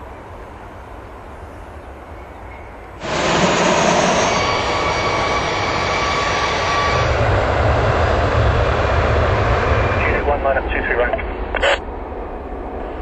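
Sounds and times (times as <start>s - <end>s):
jet engines running: 3.0s - 13.0s.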